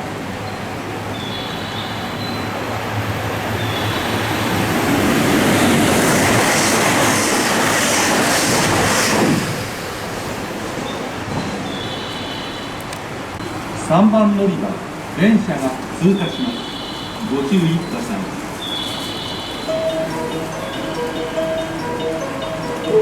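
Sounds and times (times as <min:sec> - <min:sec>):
train passing: 0:00.0 - 0:23.0
rhythmic wheel clatter: 0:19.6 - 0:23.0.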